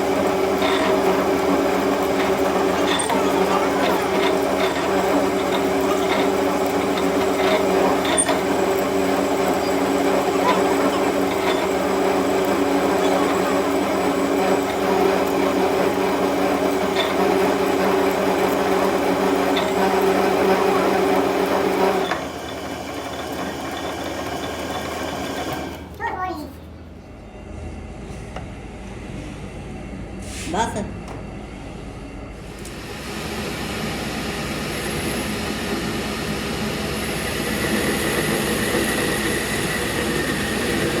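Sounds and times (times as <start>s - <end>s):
machine motor humming: 0.0s - 26.0s.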